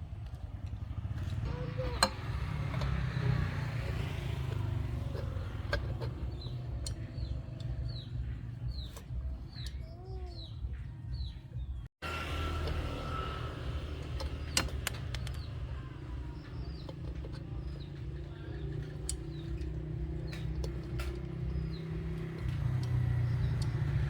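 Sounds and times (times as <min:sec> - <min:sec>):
low engine-like rumble: 0:00.0 - 0:24.0
sharp metallic clicks: 0:01.8 - 0:09.8, 0:13.6 - 0:24.0
faint bird chirps: 0:06.3 - 0:11.9.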